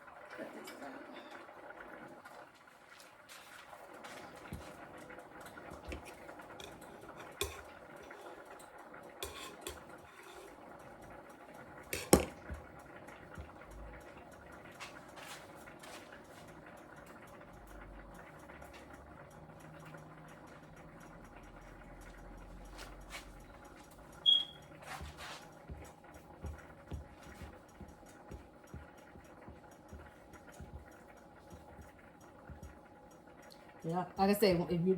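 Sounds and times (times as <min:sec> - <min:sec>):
utensils clinking on cookware: 0:04.2 - 0:16.5.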